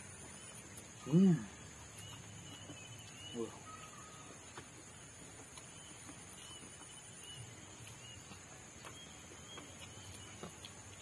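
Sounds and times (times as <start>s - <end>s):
faint high chirps: 0.0s - 4.6s
people chewing and lip smacking: 0.1s - 11.0s.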